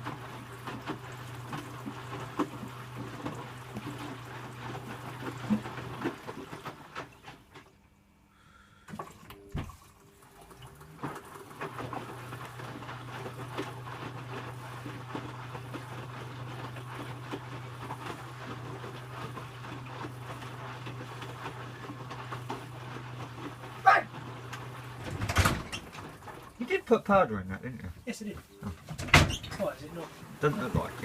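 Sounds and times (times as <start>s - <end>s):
washing machine running: 0.0s - 31.0s
washing machine clicks: 24.4s - 26.7s, 28.7s - 29.8s.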